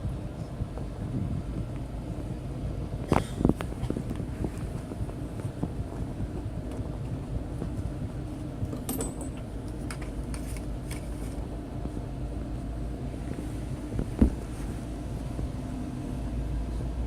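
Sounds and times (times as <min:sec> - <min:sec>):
train rumbling: 0:00.0 - 0:17.0
metallic clinks and rattles: 0:08.7 - 0:11.1.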